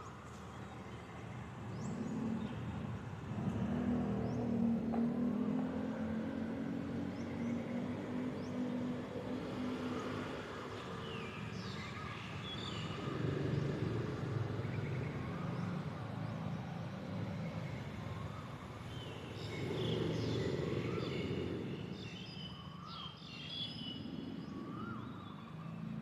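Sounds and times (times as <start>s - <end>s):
city traffic rumble: 0.0s - 26.0s
birds chirping: 10.7s - 26.0s.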